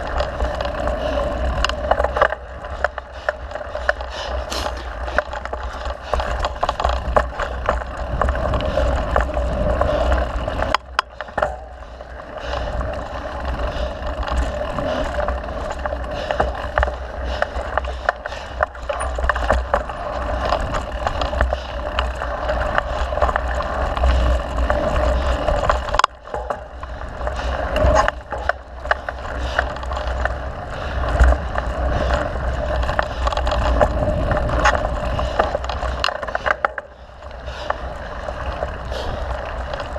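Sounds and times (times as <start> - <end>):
bike clicking and rattling: 0.0 - 39.9
bike tyres on trail: 0.0 - 39.9
wind on microphone: 20.0 - 36.1.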